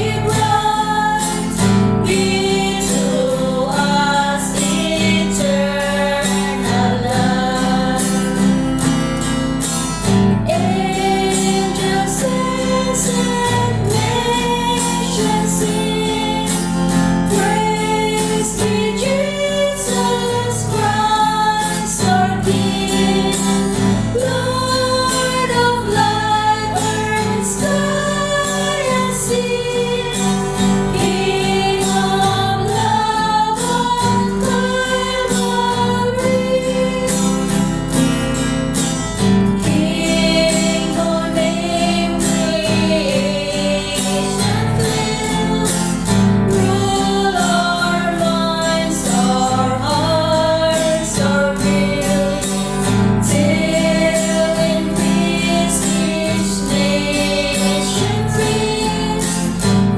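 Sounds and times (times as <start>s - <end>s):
guitar accompaniment: 0.0s - 59.9s
voices singing a hymn: 0.0s - 59.9s.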